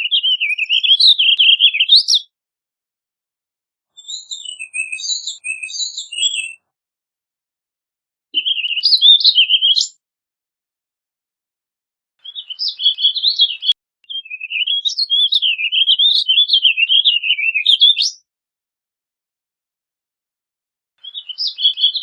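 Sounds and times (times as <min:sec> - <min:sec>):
bird singing warbled song: 0:00.0 - 0:02.3, 0:03.9 - 0:06.7, 0:08.4 - 0:10.0, 0:12.2 - 0:18.3, 0:21.0 - 0:22.0.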